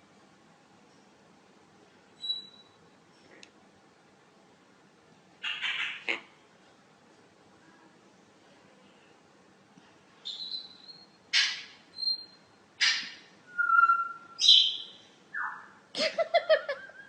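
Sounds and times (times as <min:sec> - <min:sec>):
parrot whistling and squawking: 0:10.3 - 0:15.8.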